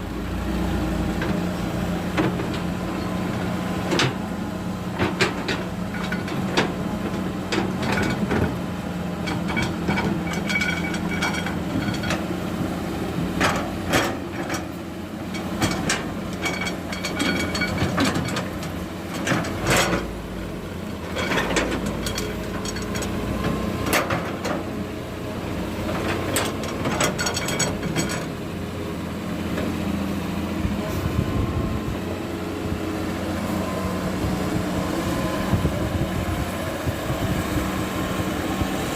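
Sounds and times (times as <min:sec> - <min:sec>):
heavy diesel engine running: 0:00.0 - 0:38.9
machinery clanks and knocks: 0:01.1 - 0:12.6, 0:13.2 - 0:24.8, 0:25.7 - 0:28.4.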